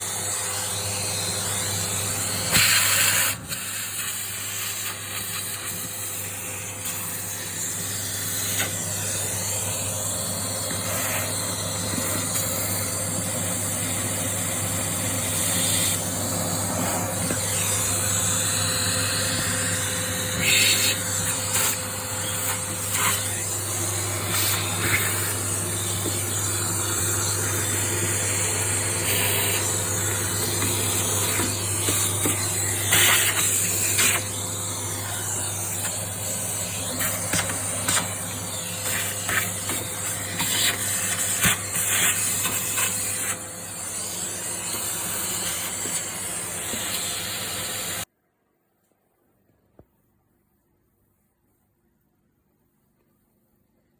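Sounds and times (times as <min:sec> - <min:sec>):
hissing spray: 0:20.4 - 0:48.0.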